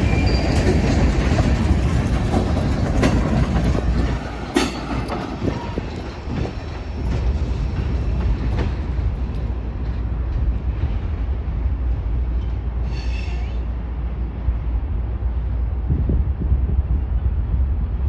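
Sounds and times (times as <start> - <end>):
high wheel squeal: 0.0 - 1.0, 12.8 - 13.7
freight train rumbling: 0.0 - 18.0
wheel clicks over rail joints: 0.5 - 6.5.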